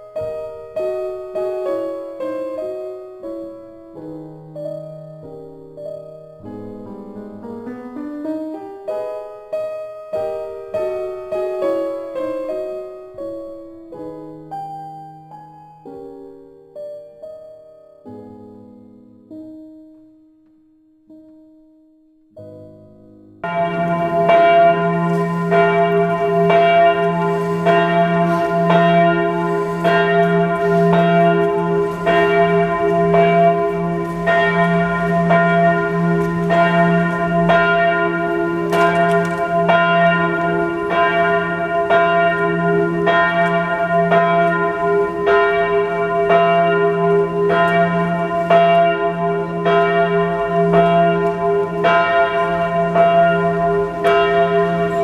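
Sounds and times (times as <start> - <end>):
church bells pealing: 0.0 - 7.6, 8.5 - 14.5, 22.5 - 55.0
humming bell resonance: 23.4 - 55.0.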